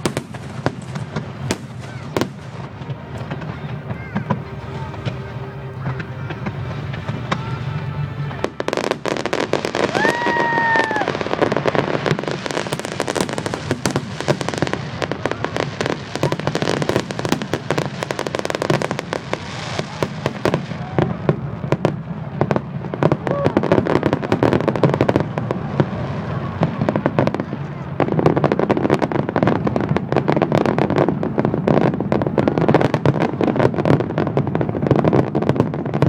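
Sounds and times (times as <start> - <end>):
firework whistle: 0.0 - 21.9
fireworks crackling and popping: 0.0 - 36.0.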